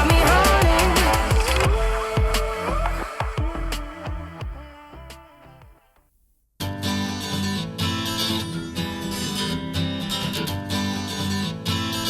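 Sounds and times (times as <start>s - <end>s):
strummed acoustic guitar: 0.0s - 4.4s, 6.6s - 12.0s
pulsing bass line: 0.0s - 5.2s.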